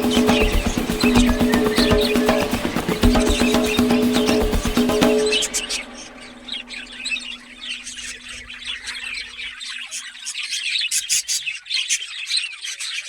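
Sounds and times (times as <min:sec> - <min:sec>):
chicks peeping: 0:00.0 - 0:07.4.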